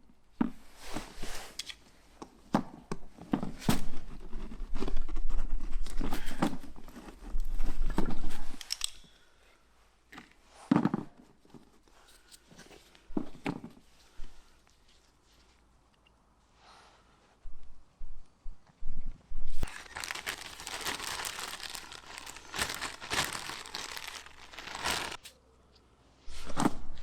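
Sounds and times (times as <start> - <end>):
crinkly rustling: 19.6 - 25.4.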